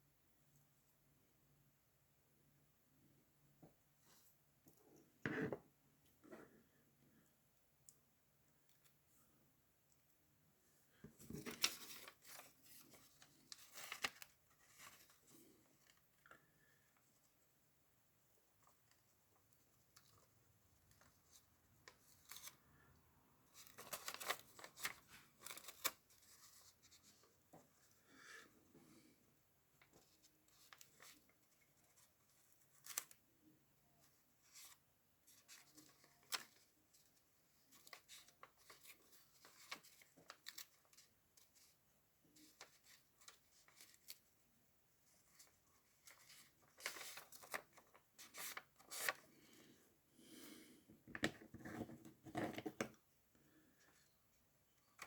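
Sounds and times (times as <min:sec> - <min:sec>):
paper and tape rustling and clicking: 0:11.1 - 0:15.2, 0:23.5 - 0:27.2, 0:37.7 - 0:41.7, 0:45.1 - 0:49.2.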